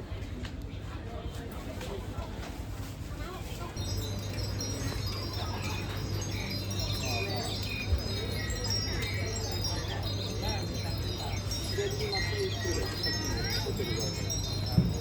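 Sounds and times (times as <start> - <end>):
murmur of voices: 0.0 - 15.0
metal chimes ringing: 3.6 - 15.0.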